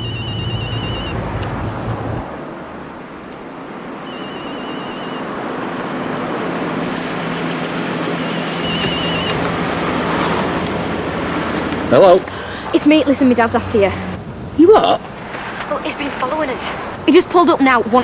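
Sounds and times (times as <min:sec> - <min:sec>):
telephone ringing electronic trill: 0:00.0 - 0:01.2, 0:04.0 - 0:05.3, 0:08.2 - 0:09.4
engine hum: 0:00.0 - 0:18.0.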